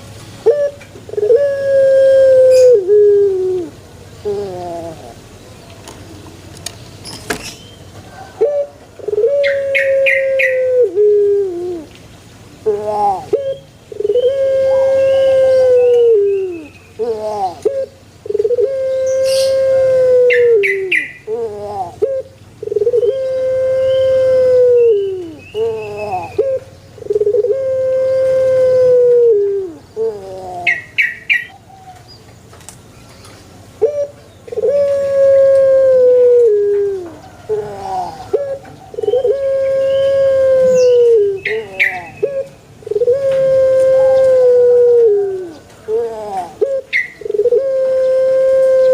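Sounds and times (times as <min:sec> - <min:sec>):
dove cooing: 0:00.4 - 0:05.3, 0:07.3 - 0:12.0, 0:12.6 - 0:32.0, 0:33.8 - 0:48.9
small birds chirping: 0:04.1 - 0:08.0, 0:20.3 - 0:24.2, 0:24.8 - 0:27.5, 0:29.7 - 0:35.1, 0:36.9 - 0:43.4.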